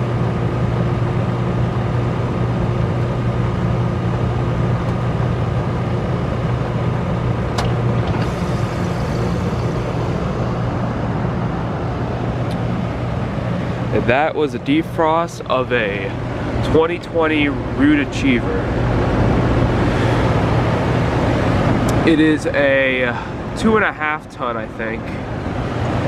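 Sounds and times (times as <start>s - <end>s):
heat pump compressor hum: 0.0s - 26.0s
sharp click: 7.6s - 8.3s.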